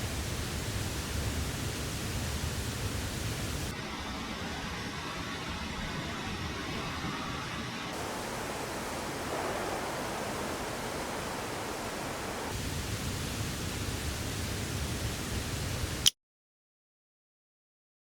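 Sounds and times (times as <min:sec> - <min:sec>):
river water rushing: 0:07.9 - 0:16.0
deep rumble: 0:08.0 - 0:13.1.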